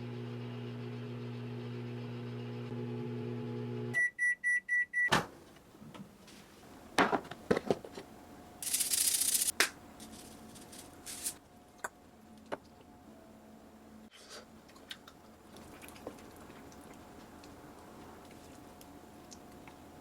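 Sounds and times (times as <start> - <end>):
microwave oven humming: 0.0 - 4.0
short beeps: 4.0 - 5.1.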